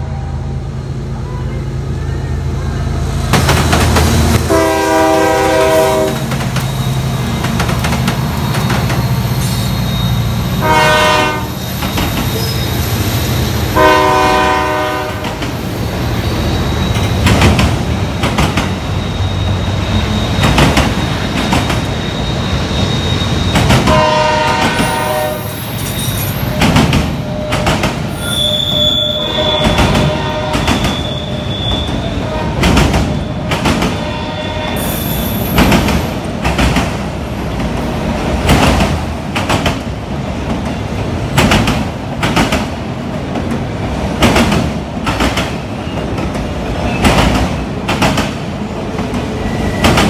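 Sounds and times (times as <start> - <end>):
train rumble: 0.0 - 50.0
locomotive horn blasts: 4.5 - 6.3, 10.6 - 11.6, 13.7 - 15.4, 23.9 - 25.6, 27.2 - 32.7, 33.9 - 34.9
high wheel squeal: 6.5 - 7.6, 8.3 - 10.6, 11.5 - 13.5, 15.7 - 17.3, 18.0 - 24.0, 24.8 - 32.3, 33.0 - 35.6.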